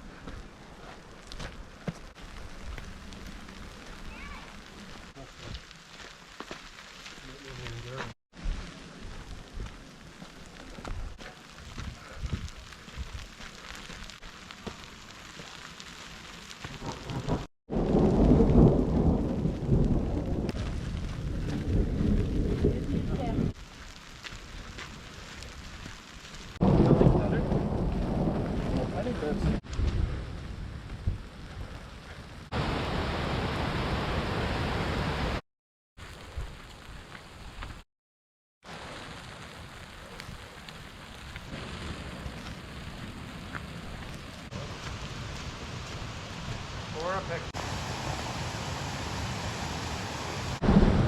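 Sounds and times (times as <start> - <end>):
steady rain: 0.0 - 35.4, 36.0 - 37.8, 38.6 - 51.0
deep rumble of thunder: 16.8 - 23.5, 26.6 - 31.7, 50.6 - 51.0.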